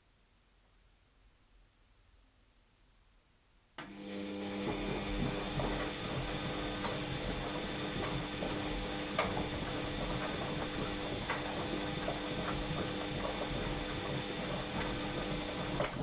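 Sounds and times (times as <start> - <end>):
washing machine motor hum: 3.8 - 16.0
washing machine clicks and knocks: 4.7 - 16.0.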